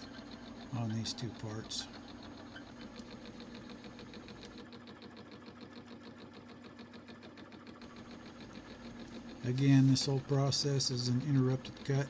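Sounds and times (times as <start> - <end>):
milling machine motor hum: 0.0 - 12.0
cutter ticking on metal: 7.8 - 12.0.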